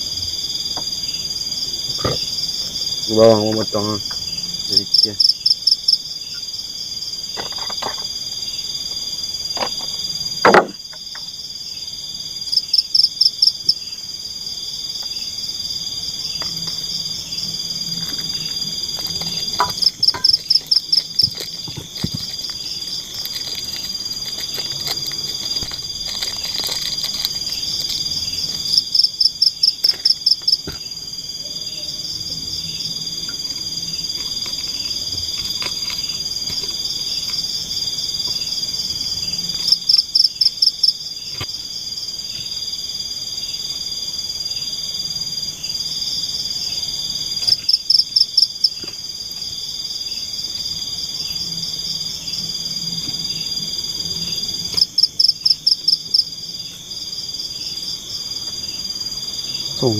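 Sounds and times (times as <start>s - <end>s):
insects high-pitched whine: 0.0s - 59.9s
insects rapid pulsing calls: 0.0s - 59.9s
sharp knocks: 10.4s - 11.0s.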